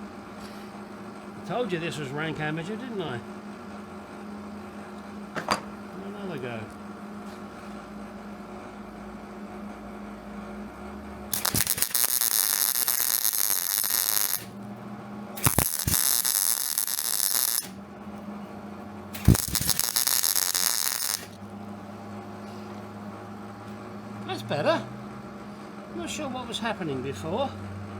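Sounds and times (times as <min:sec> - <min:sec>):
steady low hum: 0:00.0 - 0:24.2
sharp click of arc striking: 0:11.3 - 0:14.5, 0:15.4 - 0:17.8, 0:19.2 - 0:21.4
welder arc crackling: 0:11.3 - 0:14.6, 0:15.4 - 0:17.8, 0:19.2 - 0:21.4.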